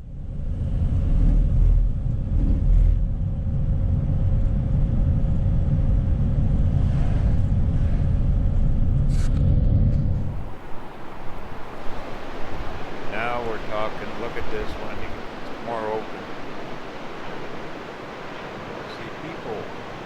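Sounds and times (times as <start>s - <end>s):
faint steady hum: 9.7s - 20.0s.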